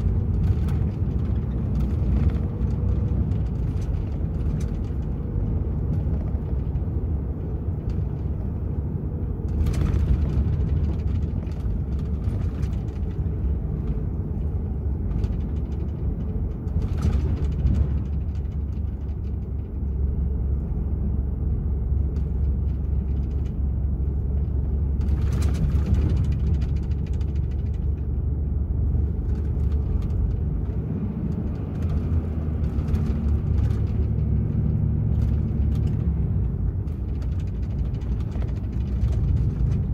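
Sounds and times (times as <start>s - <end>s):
road rumble: 0.0s - 39.9s
truck diesel engine running: 0.0s - 39.9s
brief clatters: 9.4s - 20.0s, 22.0s - 28.2s.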